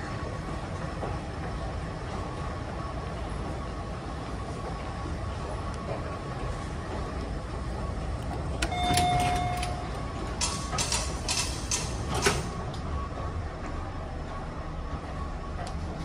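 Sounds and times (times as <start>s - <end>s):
low rumble of subway station: 0.0s - 16.0s
held electronic beep: 8.6s - 10.0s.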